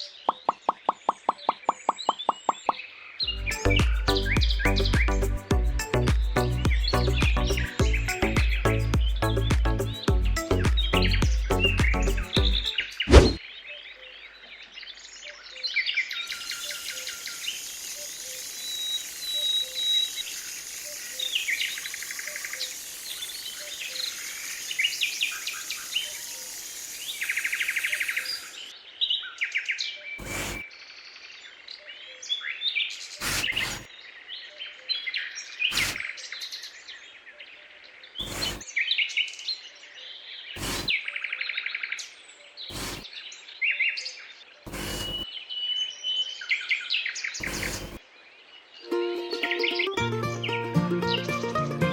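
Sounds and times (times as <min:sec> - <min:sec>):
small birds chirping: 0:00.0 - 0:48.9
steady hiss: 0:16.4 - 0:28.7, 0:30.2 - 0:30.6, 0:33.2 - 0:33.9, 0:35.7 - 0:36.0, 0:38.2 - 0:38.6, 0:40.6 - 0:41.0, 0:42.7 - 0:43.1, 0:44.7 - 0:45.2, 0:47.4 - 0:48.0.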